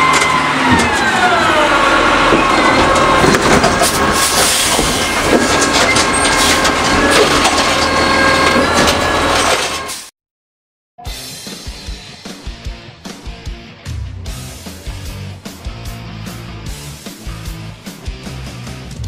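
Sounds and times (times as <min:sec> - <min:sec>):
garbage truck clattering and knocking: 0:00.0 - 0:01.2, 0:02.0 - 0:10.0
garbage truck hydraulic whine: 0:00.0 - 0:10.1.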